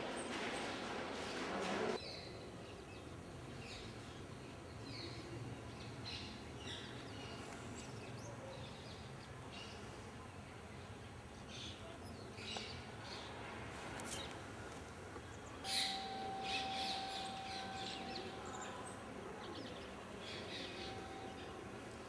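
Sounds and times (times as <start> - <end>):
faint steady tone: 15.0 - 22.0.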